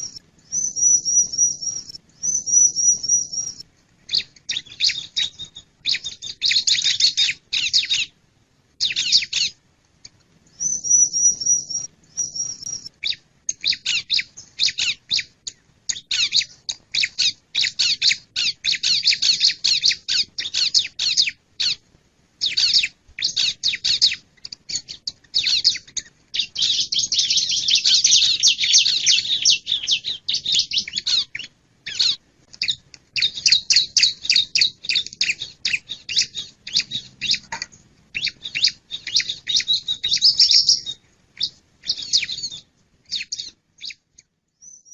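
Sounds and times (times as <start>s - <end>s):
bird scratchy chirps: 0.0s - 8.1s, 8.8s - 21.8s, 22.4s - 44.9s
thin whistled bird notes: 0.0s - 8.1s, 10.5s - 21.8s, 22.4s - 44.9s.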